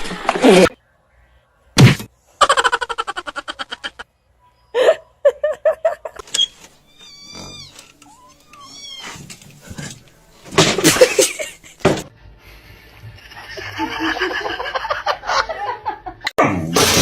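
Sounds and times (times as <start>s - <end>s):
cat meowing: 6.9s - 9.2s.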